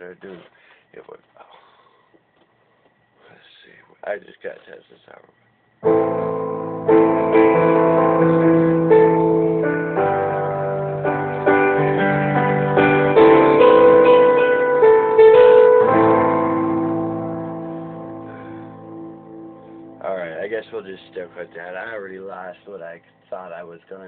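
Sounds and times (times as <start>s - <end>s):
keyboard playing piano chords: 5.8s - 24.0s.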